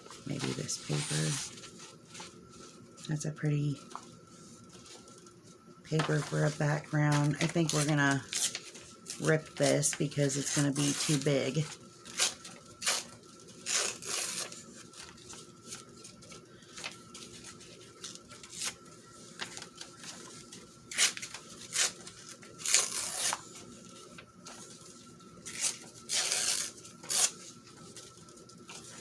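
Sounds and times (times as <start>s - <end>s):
paper tearing: 0.4s - 1.8s, 6.1s - 15.3s, 20.9s - 23.6s, 25.4s - 27.6s.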